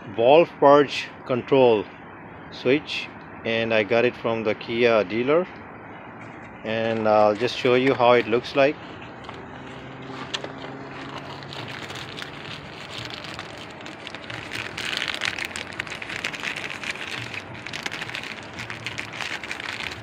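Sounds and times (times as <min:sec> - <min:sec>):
crackling and rustling handling noise: 0:06.2 - 0:20.0.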